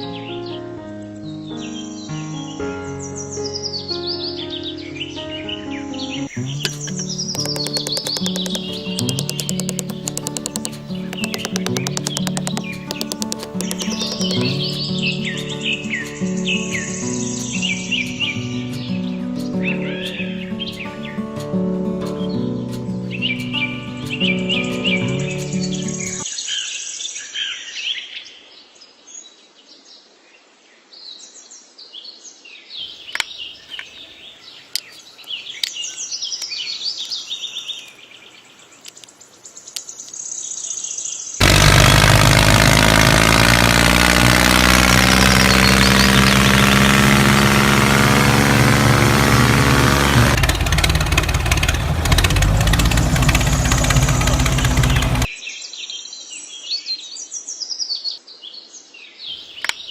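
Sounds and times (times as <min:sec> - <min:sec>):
birds chirping: 0:06.2 - 0:18.4, 0:32.8 - 0:55.3
loud steady engine running: 0:07.4 - 0:14.6, 0:41.4 - 0:55.3.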